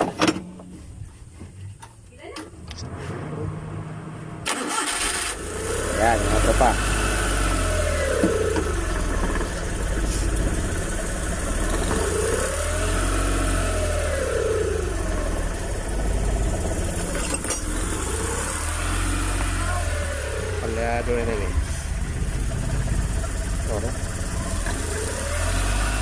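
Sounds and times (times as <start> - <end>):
engine idling and revving: 2.6 - 26.0
man talking: 5.9 - 6.8, 20.6 - 21.7, 23.6 - 24.1.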